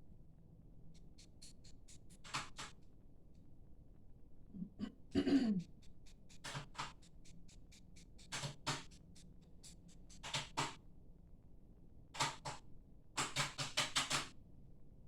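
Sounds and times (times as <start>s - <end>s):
sharp clicks and taps: 5.8s - 10.8s.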